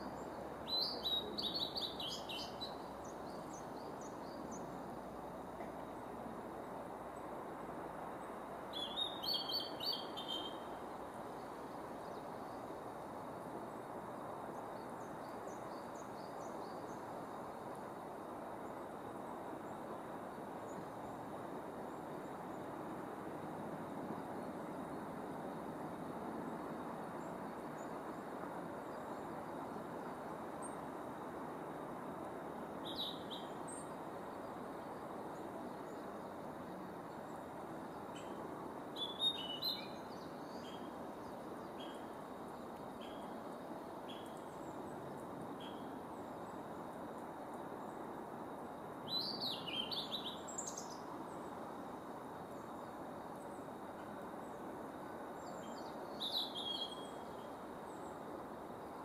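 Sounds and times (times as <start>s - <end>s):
background hiss: 0.0s - 59.0s
flycatcher singing: 0.2s - 4.7s, 8.8s - 10.8s, 39.0s - 43.4s, 49.1s - 51.4s, 55.4s - 58.1s.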